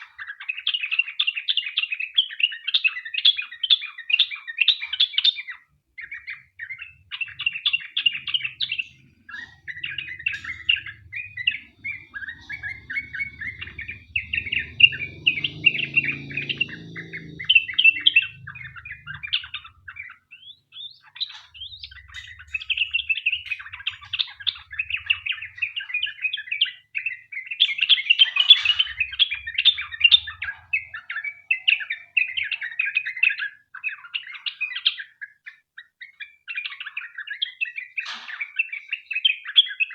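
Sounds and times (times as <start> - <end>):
bulbul singing chattering warbles: 0.0 - 35.3
faint low rumble: 6.6 - 27.1, 28.0 - 32.7.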